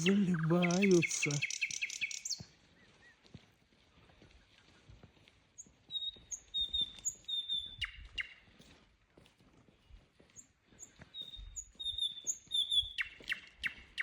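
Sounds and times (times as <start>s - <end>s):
nightingale singing: 0.0s - 2.4s.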